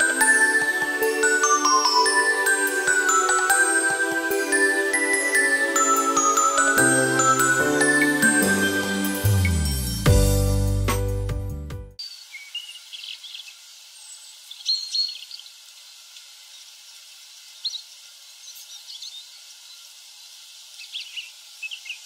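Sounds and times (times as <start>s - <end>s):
small birds chirping: 12.0s - 20.0s, 20.6s - 22.0s
faint woodland hiss: 12.0s - 22.0s.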